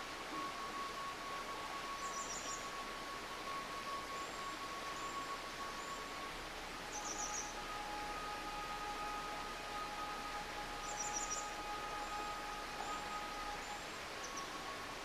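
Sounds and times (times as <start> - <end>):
soft held tone: 0.0 - 15.0
stream running: 0.0 - 15.0
small birds chirping and trilling: 2.0 - 2.9, 6.9 - 7.6, 10.4 - 15.0.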